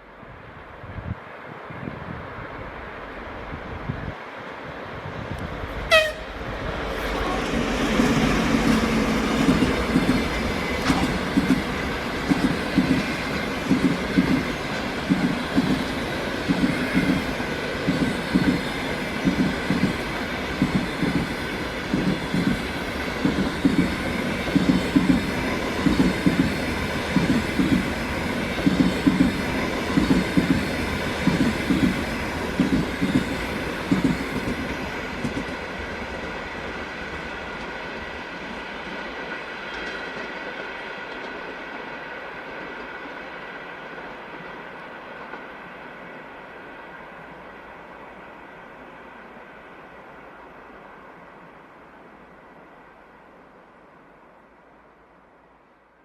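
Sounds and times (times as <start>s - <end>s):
train wheels clattering over rail joints: 7.4s - 18.6s.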